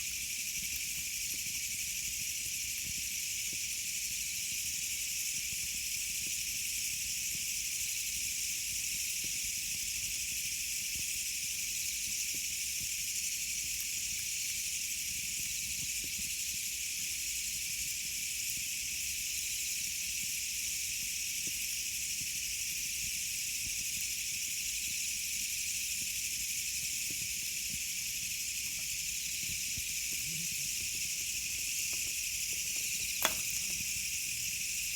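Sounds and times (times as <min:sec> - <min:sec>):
campfire hissing: 0:22.2 - 0:34.9
faint fire crackles: 0:28.0 - 0:34.9.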